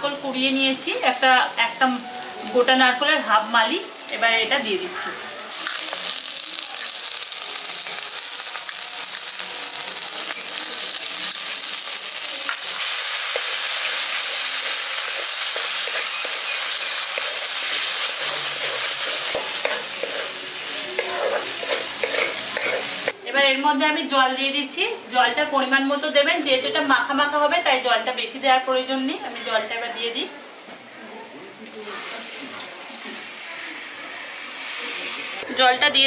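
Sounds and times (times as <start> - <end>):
masala sizzling in oil: 0.0 - 36.0
wooden spatula scraping pan: 21.0 - 23.1.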